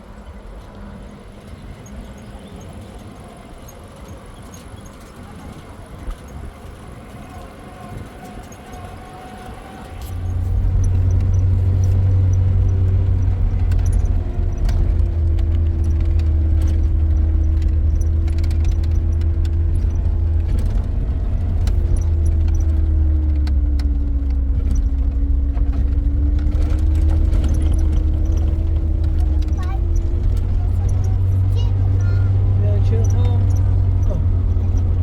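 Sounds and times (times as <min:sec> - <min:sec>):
vehicle engine low rumble: 0:00.0 - 0:35.0
rattles: 0:09.8 - 0:35.0.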